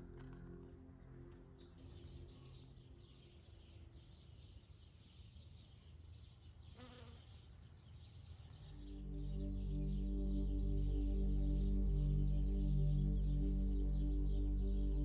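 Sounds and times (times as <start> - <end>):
soft music: 0.0 - 3.9, 8.6 - 15.0.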